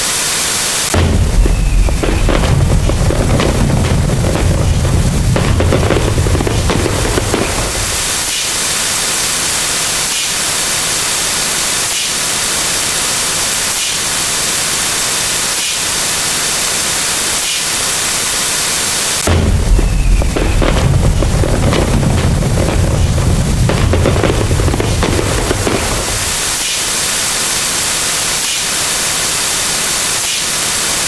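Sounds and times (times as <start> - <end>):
booming layered noise: 0.0 - 17.0, 18.9 - 31.0
loud steady static hiss: 0.0 - 31.0
faint regular pulses: 1.0 - 8.9, 19.3 - 26.6.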